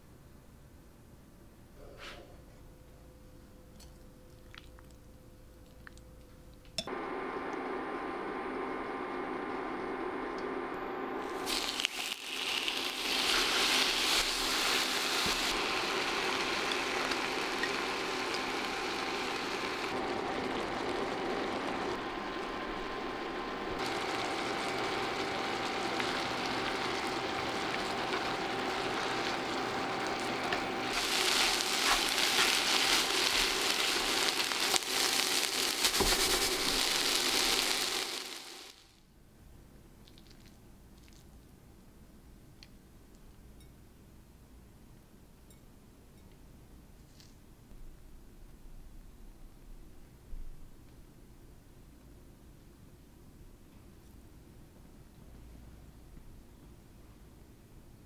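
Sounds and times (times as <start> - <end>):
faint steady hum: 0.0 - 58.0
meat sizzling in a pan: 11.2 - 39.0
chopsticks stirring meat: 30.2 - 35.0.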